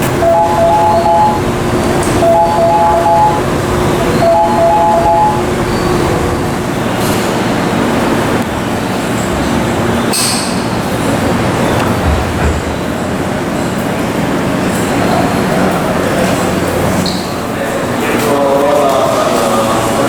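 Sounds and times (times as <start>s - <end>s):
electric train humming: 0.0s - 20.0s
two-note electronic chime: 0.2s - 6.0s.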